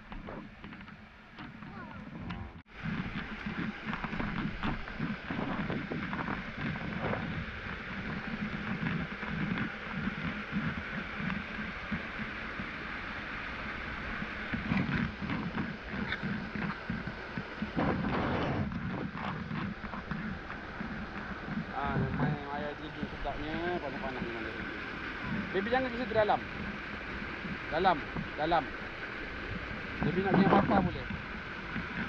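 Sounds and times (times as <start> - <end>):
wind buffeting microphone: 0.0 - 32.0
waterfall rushing: 2.7 - 32.0.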